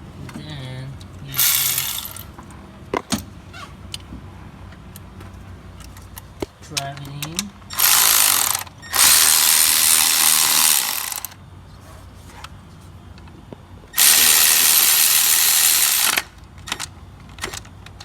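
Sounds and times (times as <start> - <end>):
cordless power tool spinning: 1.3 - 2.3, 7.7 - 11.4, 14.0 - 16.4.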